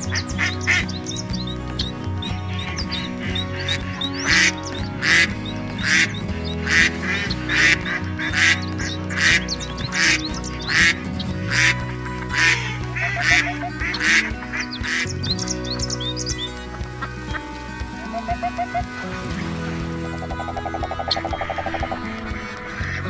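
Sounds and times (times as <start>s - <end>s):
duck quacking: 3.3s - 15.0s.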